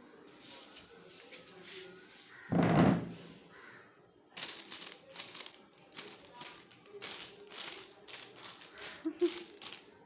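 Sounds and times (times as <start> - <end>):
scratchy rustling and crackling: 4.4 - 10.0.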